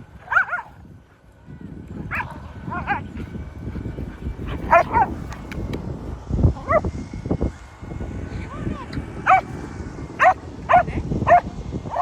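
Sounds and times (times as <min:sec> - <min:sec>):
low rumbling noise: 0:00.0 - 0:12.0
dog yipping: 0:00.3 - 0:00.7, 0:04.7 - 0:05.2, 0:10.2 - 0:11.4.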